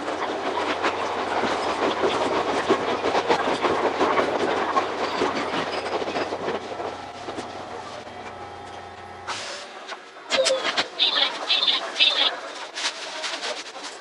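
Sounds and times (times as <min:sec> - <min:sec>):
train wheels clattering over rail joints: 0:00.0 - 0:09.7.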